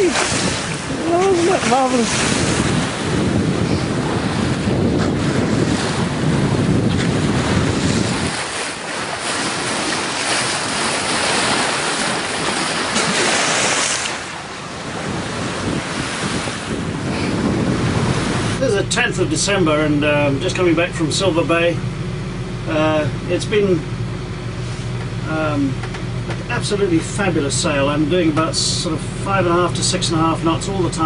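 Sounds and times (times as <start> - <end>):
sea water rushing and splashing: 0.0 - 21.8
wind buffeting microphone: 0.0 - 31.0.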